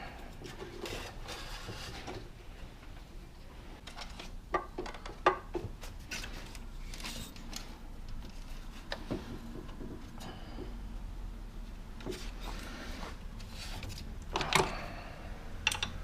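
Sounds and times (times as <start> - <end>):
wrench and metal parts clicking: 15.6 - 16.0.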